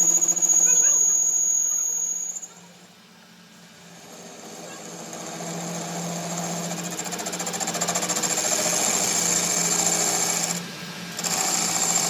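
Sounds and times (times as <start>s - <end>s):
power tool hammering rattle: 3.9s - 12.0s.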